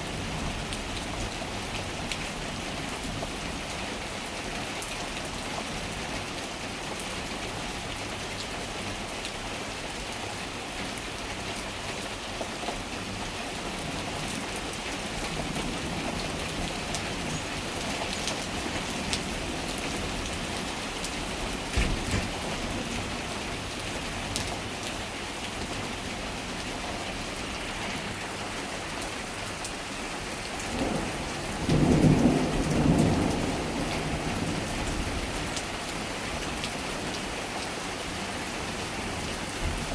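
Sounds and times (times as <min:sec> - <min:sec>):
steady rain falling: 0:00.0 - 0:39.9
low rumble of thunder: 0:15.2 - 0:24.3, 0:30.6 - 0:35.7.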